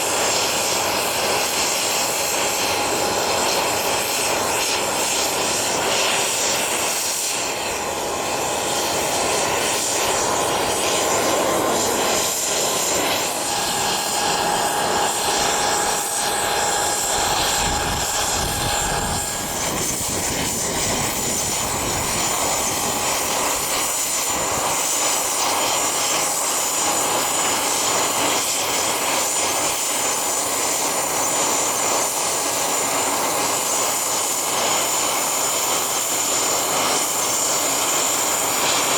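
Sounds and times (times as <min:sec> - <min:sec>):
aircraft engines running: 0:00.0 - 0:38.9
thin high whine: 0:08.2 - 0:24.3.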